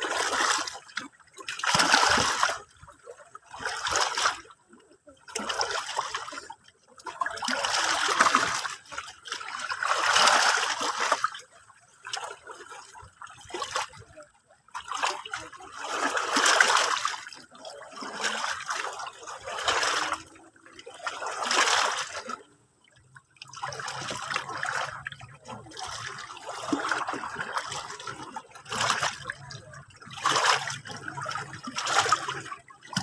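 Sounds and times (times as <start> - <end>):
small waves lapping and splashing: 0.0 - 33.0.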